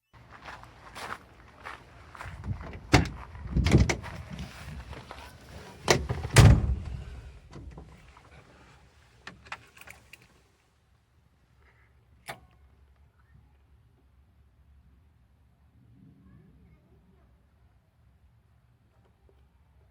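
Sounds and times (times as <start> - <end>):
faint low rumble: 0.3 - 8.8, 12.6 - 19.8
vehicle door clunks and knocks: 2.4 - 4.2, 5.8 - 8.0.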